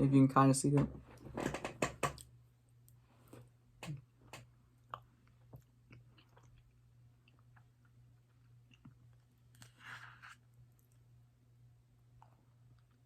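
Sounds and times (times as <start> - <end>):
low steady hum: 0.0 - 13.0
chewing and mouth clicks: 4.8 - 9.7.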